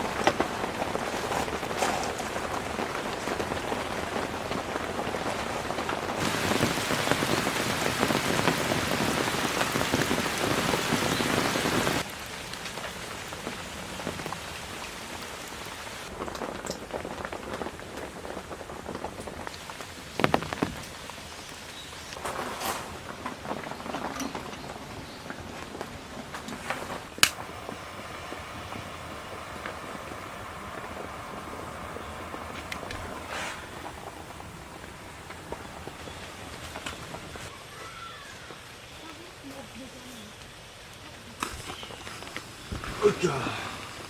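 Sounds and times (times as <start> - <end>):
heavy rain on tent fabric: 0.0 - 44.0.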